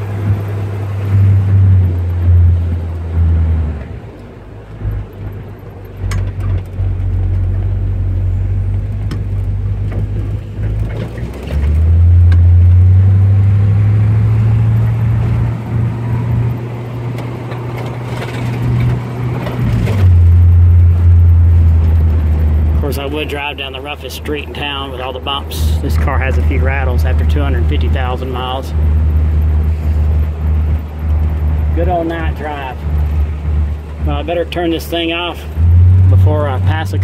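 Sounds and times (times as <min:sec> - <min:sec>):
car engine and exhaust droning: 0:00.0 - 0:37.0.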